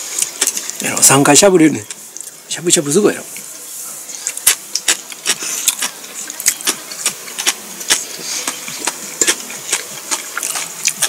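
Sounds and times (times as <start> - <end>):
person chewing food: 0.0 - 0.8, 4.1 - 11.0.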